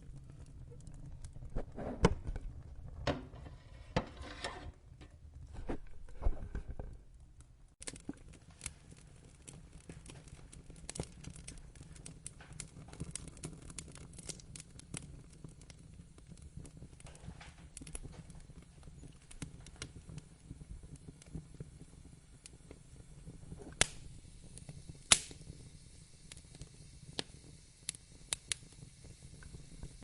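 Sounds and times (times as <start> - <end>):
wood fire crackling and popping: 0.0 - 30.0.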